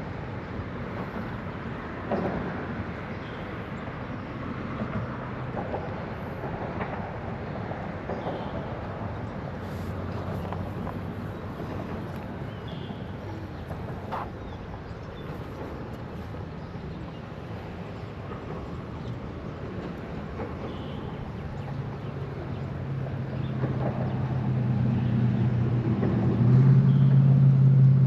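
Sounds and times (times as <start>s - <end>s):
vehicle engine hum: 21.6s - 28.0s.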